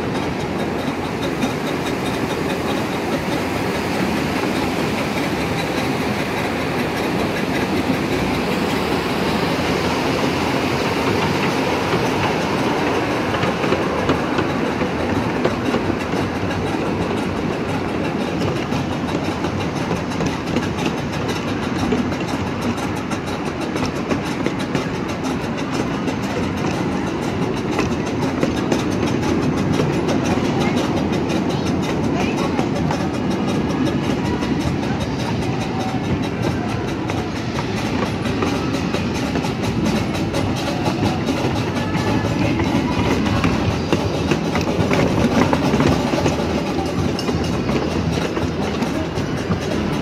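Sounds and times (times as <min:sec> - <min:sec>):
clickety-clack of rail joints: 0:00.0 - 0:50.0
miniature train wheels on rail: 0:00.0 - 0:50.0.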